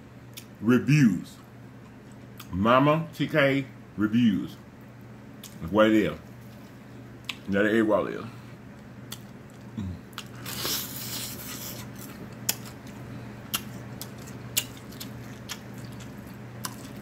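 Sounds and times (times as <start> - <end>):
chewing with mouth clicks: 5.4 - 5.7, 6.3 - 7.5, 8.7 - 17.0.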